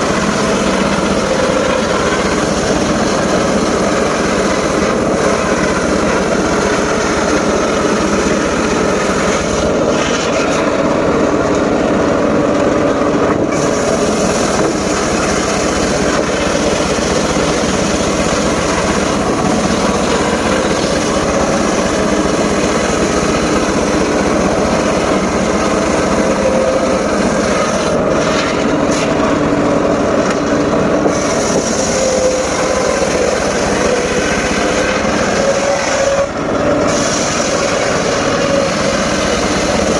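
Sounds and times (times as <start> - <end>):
sawmill machine drone: 0.0 - 39.9.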